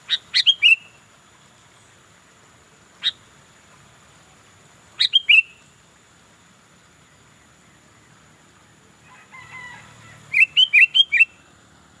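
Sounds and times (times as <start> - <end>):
bird calling in sharp notes: 0.0 - 1.0, 5.0 - 5.6, 10.3 - 11.4
bird warbling: 0.0 - 1.0, 5.0 - 5.6, 10.0 - 11.4.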